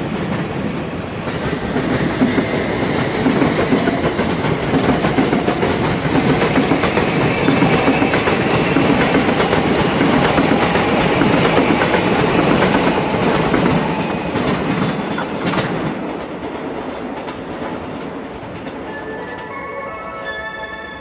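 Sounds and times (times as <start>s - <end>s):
train wheels clattering over rail joints: 1.3s - 18.8s
faint high wheel squeal: 11.7s - 15.6s.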